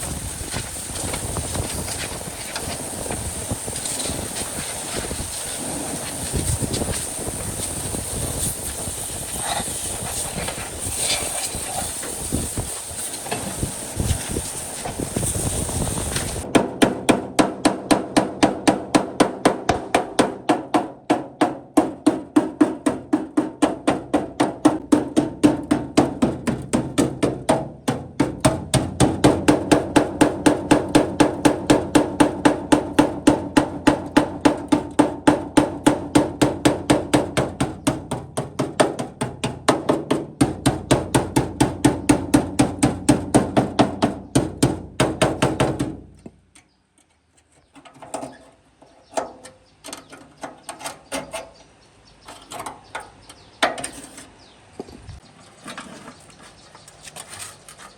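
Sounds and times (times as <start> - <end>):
hammer striking sheet metal: 16.2 - 46.0.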